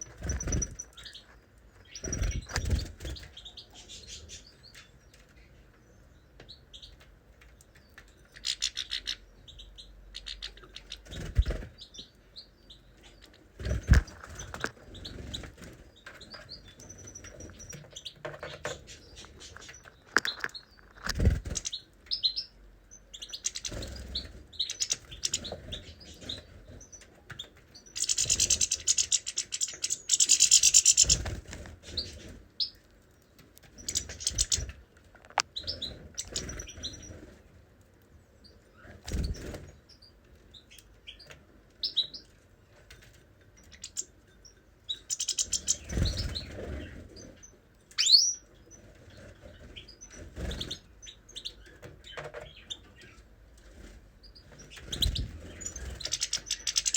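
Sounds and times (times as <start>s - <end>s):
rapid bird twittering: 0.0s - 4.6s, 16.2s - 27.0s, 27.8s - 32.8s, 33.8s - 34.7s, 35.6s - 37.2s, 44.9s - 47.3s, 48.0s - 48.4s, 54.5s - 56.9s
caged birds chirping: 0.0s - 56.9s.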